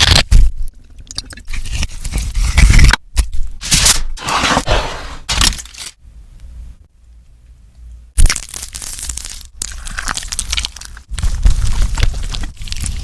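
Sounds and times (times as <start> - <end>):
crunchy food eating: 8.2 - 13.0.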